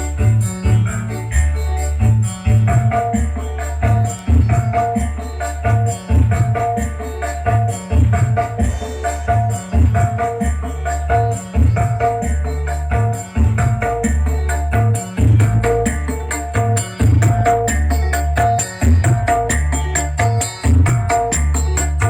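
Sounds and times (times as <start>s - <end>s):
bass-heavy music over sound system: 0.0s - 22.0s
hand drums and rattling percussion: 13.1s - 22.0s.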